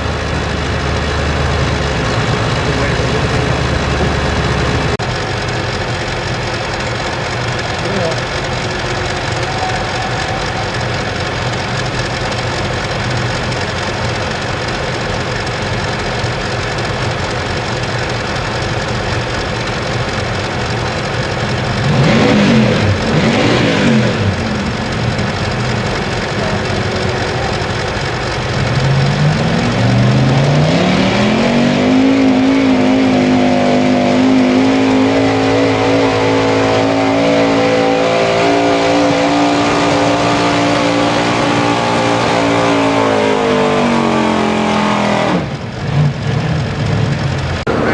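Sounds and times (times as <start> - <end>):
truck engine revving: 0.0 - 47.9.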